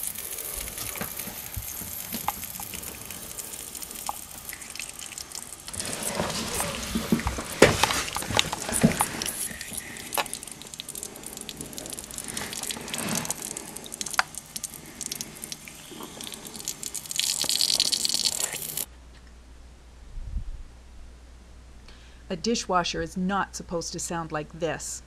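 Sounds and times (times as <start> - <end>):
water spraying from leaking valve: 0.0 - 18.9.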